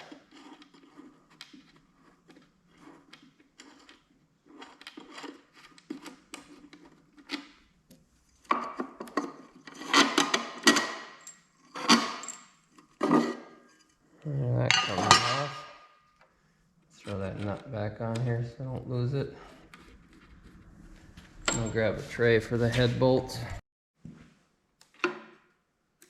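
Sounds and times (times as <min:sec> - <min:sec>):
metal parts clinking and rattling: 0:21.4 - 0:21.8.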